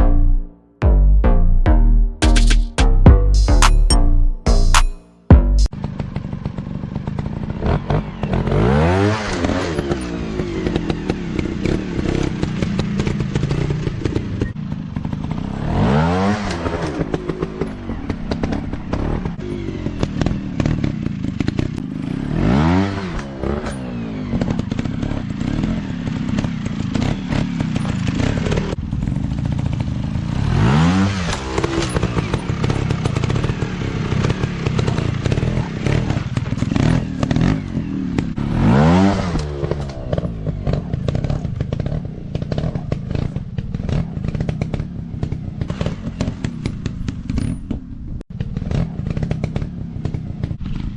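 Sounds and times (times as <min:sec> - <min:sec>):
dirt bike engine revving: 0:04.4 - 0:47.5, 0:48.3 - 0:50.9
bike clattering over rough ground: 0:23.2 - 0:29.9, 0:39.1 - 0:50.9.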